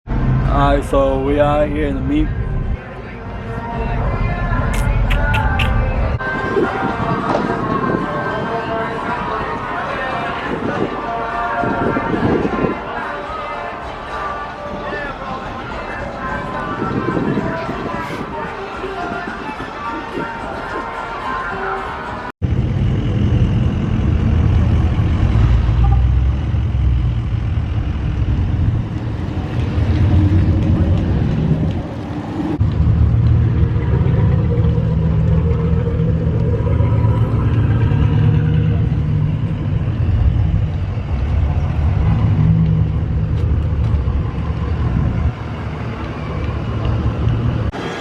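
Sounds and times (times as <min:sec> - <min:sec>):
truck engine rumbling: 0:00.1 - 0:48.0.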